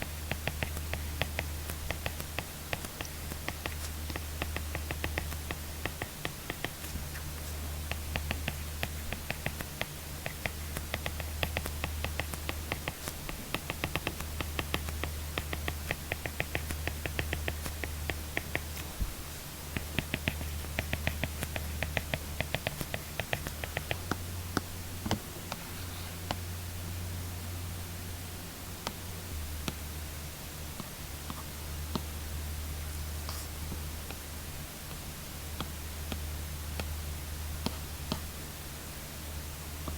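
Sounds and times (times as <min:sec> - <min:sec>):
steady low hum: 0:00.0 - 0:39.9
stylus scratching on screen: 0:19.7 - 0:24.1.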